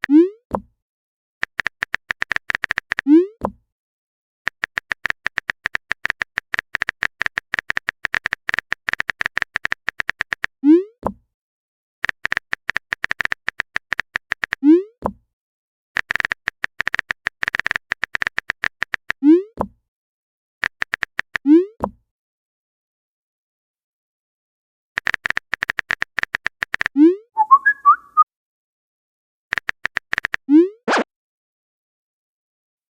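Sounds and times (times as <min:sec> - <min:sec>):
rapid typing clicks: 0:01.4 - 0:03.0, 0:04.5 - 0:10.5, 0:12.0 - 0:14.6, 0:16.0 - 0:19.2, 0:20.6 - 0:21.4, 0:25.0 - 0:26.9, 0:29.5 - 0:30.4
short rising bloop: 0:27.4 - 0:28.2.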